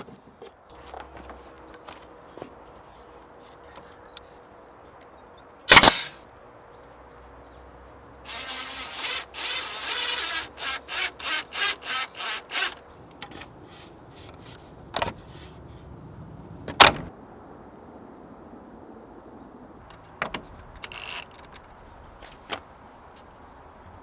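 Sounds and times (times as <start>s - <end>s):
hand saw cutting wood: 5.7s - 6.2s, 8.3s - 14.6s.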